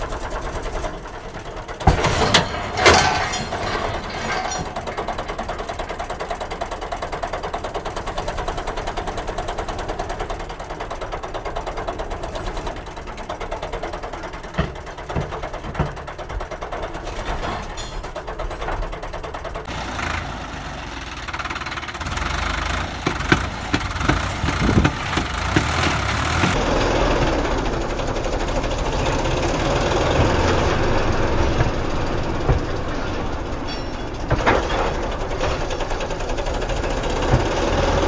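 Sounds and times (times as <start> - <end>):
tractor diesel engine running: 19.7 - 26.6.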